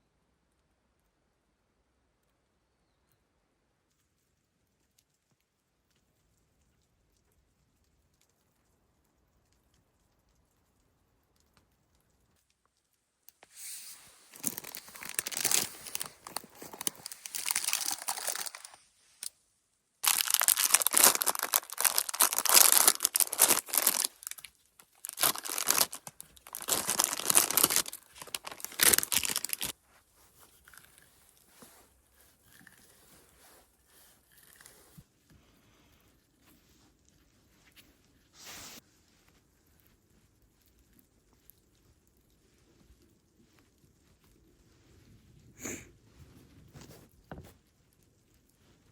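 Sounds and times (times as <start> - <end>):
faint handling noises: 12.7 - 19.3, 20.0 - 48.9
packaging torn and crinkled: 14.3 - 19.3, 20.0 - 29.8.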